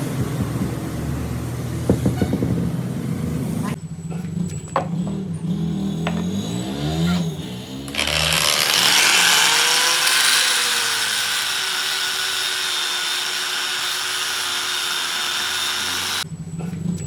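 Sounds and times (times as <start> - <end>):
power tool grinding steel: 5.4 - 16.2.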